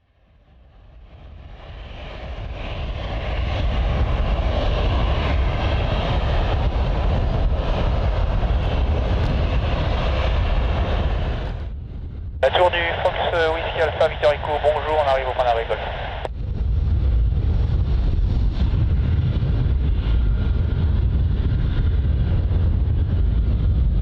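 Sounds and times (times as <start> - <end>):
jet engines taxiing: 1.1 - 11.7, 12.4 - 16.3.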